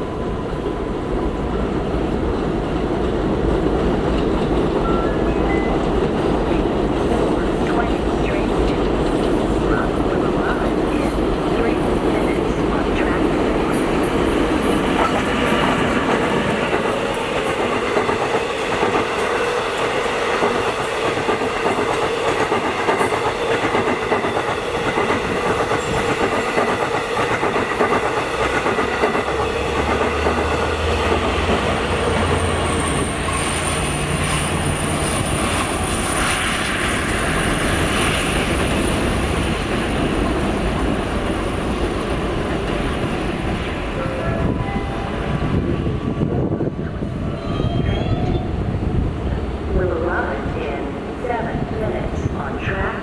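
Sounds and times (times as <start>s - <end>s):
train rumble: 0.0s - 53.0s
train wheels clicking over rail joints: 13.7s - 35.8s.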